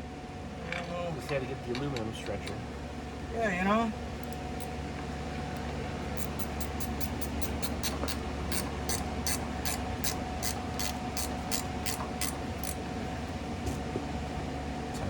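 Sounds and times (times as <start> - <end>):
low steady hum: 0.0 - 15.0
ratchet wrench clicking: 6.2 - 12.8.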